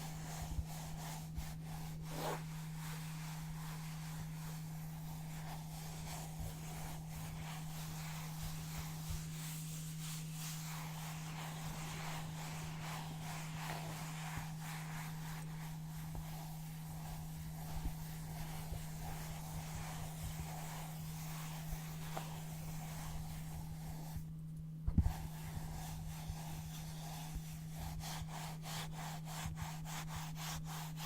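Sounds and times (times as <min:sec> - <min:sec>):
low electrical hum: 0:00.0 - 0:31.0
brown paper rustling and scraping: 0:02.0 - 0:24.2.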